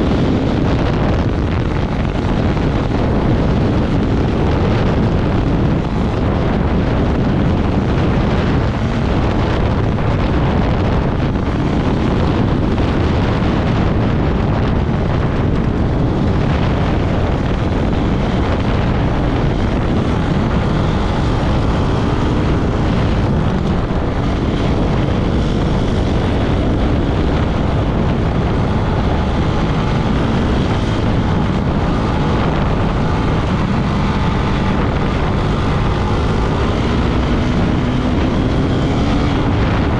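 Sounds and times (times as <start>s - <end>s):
off-road vehicle engine running: 0.0s - 39.9s
wind buffeting microphone: 0.0s - 39.9s.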